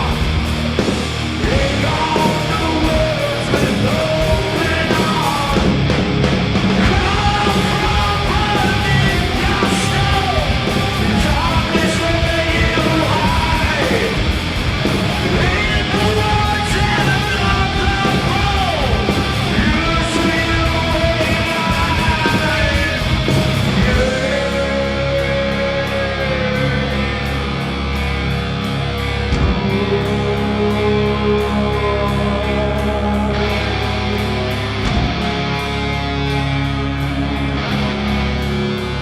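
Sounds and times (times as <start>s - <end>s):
heavy metal band playing: 0.0s - 39.0s.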